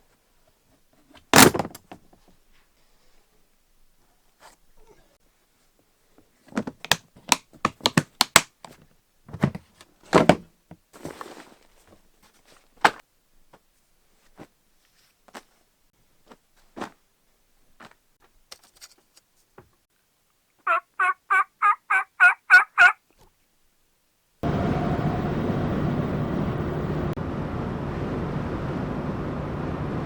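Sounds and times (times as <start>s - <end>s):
turkey yelps: 20.7s - 23.0s
road noise inside moving vehicle: 24.4s - 30.0s.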